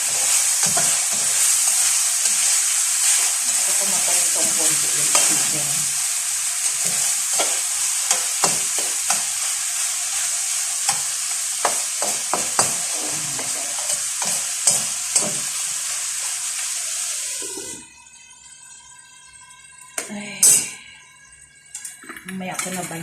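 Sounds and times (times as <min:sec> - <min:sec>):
spatula scraping and tapping pan: 0:00.0 - 0:05.6, 0:06.7 - 0:15.5
chicken sizzling in a pan: 0:00.0 - 0:23.0.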